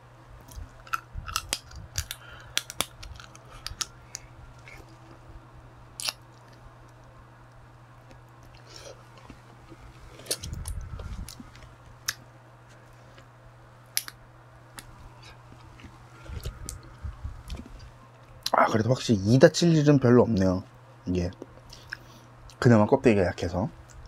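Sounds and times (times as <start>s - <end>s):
steady low hum: 0.0s - 24.0s
chewing crab shell: 0.5s - 5.1s, 6.0s - 6.6s
sharp shell cracks: 13.9s - 14.2s.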